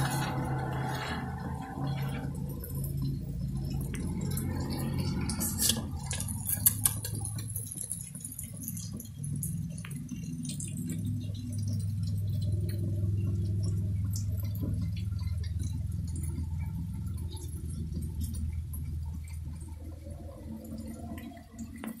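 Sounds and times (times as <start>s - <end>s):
steady low rumble: 0.0s - 21.8s
rain drops ticking: 0.0s - 22.0s.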